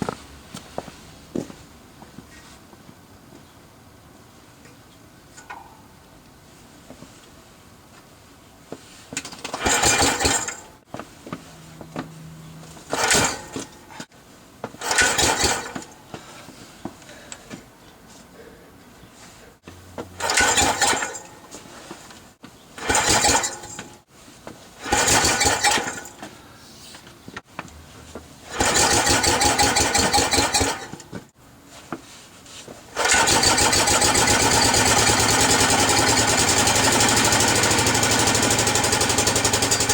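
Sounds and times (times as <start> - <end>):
starter rope pulled: 9.2 - 14.1, 14.7 - 16.0, 20.2 - 22.2, 22.8 - 23.9, 24.8 - 26.3, 28.5 - 31.2, 32.9 - 39.9
small engine firing and running: 9.5 - 10.6, 12.9 - 13.7, 14.8 - 15.9, 20.2 - 21.3, 22.8 - 23.9, 24.8 - 26.1, 28.5 - 31.0, 33.0 - 39.9.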